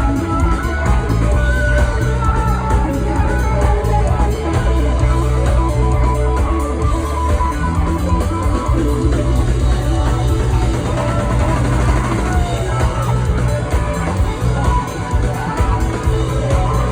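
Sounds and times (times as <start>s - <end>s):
bass: 0.0s - 16.9s
drums: 0.0s - 16.9s
electric guitar lines: 0.0s - 16.9s.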